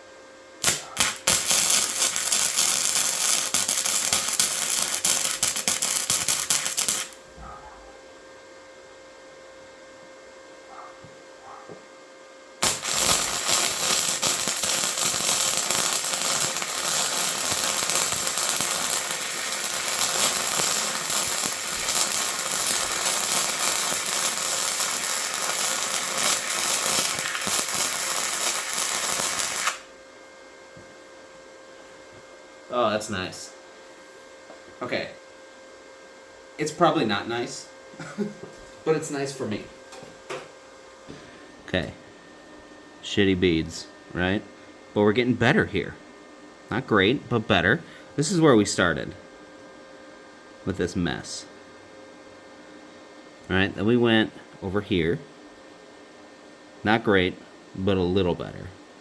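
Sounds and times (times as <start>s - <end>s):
welding arc crackling: 0.6s - 7.3s, 12.6s - 29.9s.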